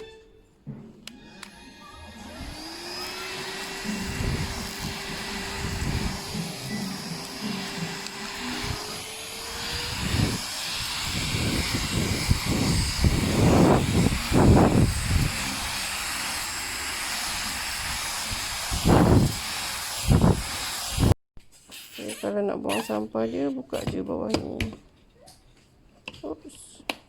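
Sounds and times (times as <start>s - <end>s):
stick vacuum motor whine: 1.1s - 21.1s.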